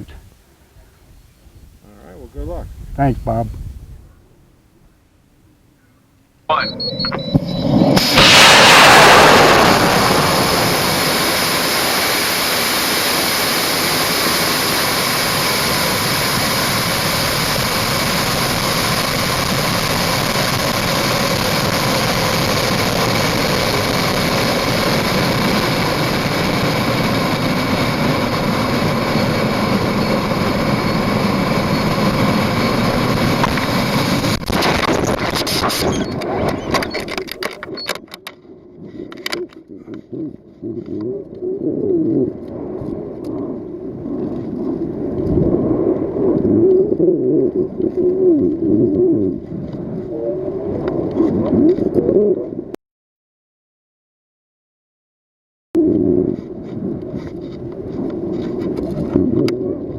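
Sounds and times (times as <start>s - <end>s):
rocket motor burning: 7.0s - 37.9s.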